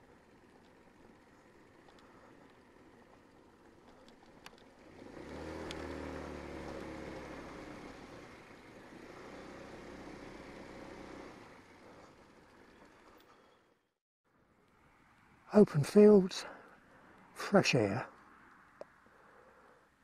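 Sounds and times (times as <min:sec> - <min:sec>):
motorbike engine running: 0:00.0 - 0:13.6
click: 0:05.6 - 0:05.8.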